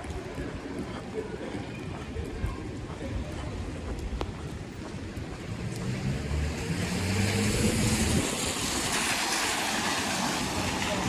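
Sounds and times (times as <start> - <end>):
wet road hiss: 5.7 - 11.0.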